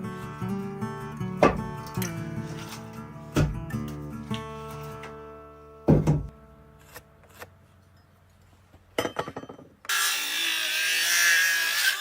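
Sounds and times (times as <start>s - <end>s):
power tool cutting wood: 9.9s - 12.0s.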